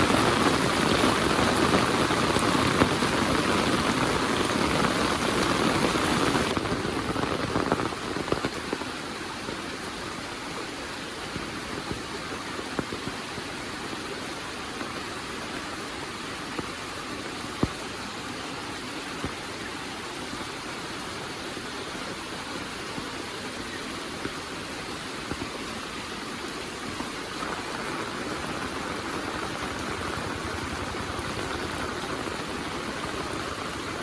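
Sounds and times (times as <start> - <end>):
heavy rain: 0.0 - 34.0.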